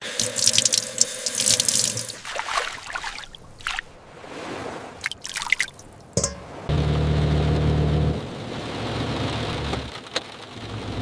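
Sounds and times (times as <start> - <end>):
water drips plinking: 0.0 - 3.9, 5.0 - 6.6
water splashing and trickling: 0.0 - 6.7.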